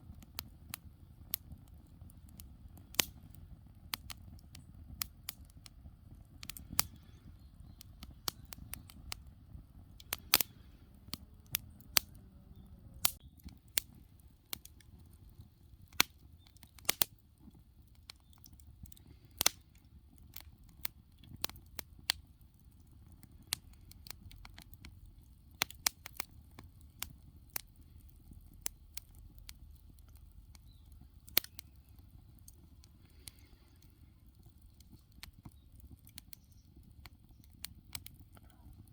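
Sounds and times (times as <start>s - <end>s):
wood fire crackling and popping: 0.0s - 38.9s
low steady rumble: 1.6s - 13.2s.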